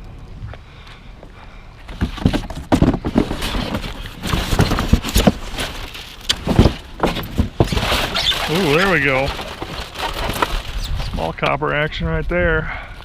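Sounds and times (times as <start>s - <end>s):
objects clanking in a dumpster: 1.9s - 11.0s.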